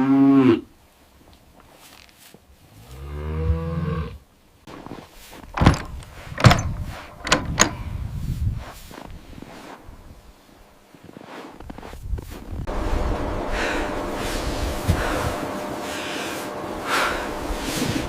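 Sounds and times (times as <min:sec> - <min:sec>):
cow mooing: 0:02.8 - 0:04.2
sharp knocks and clunks: 0:05.4 - 0:07.8.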